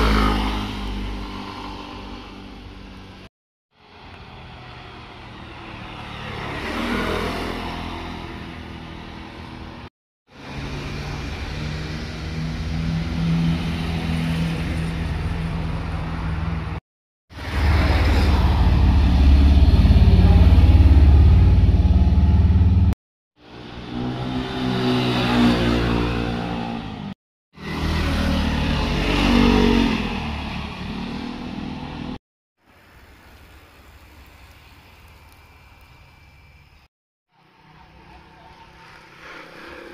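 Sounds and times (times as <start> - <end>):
motorcycles riding past: 4.2 - 9.8, 17.4 - 32.2, 37.5 - 39.9.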